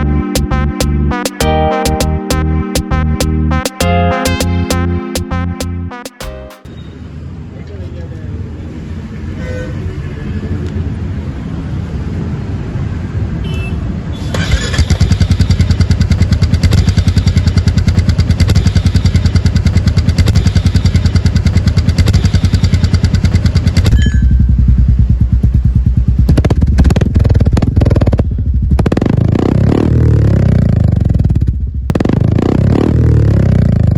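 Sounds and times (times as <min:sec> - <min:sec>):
motorcycle engine rumbling: 0:14.3 - 0:33.9.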